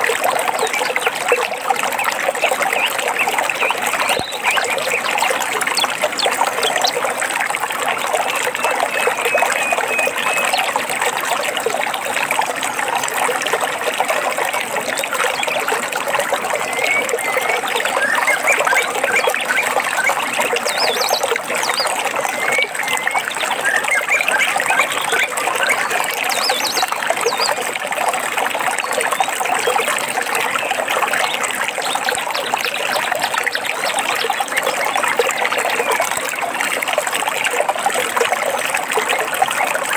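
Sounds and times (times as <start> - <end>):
stream trickling and splashing: 0.0 - 39.9
birds chirping: 2.2 - 7.1, 8.2 - 10.7.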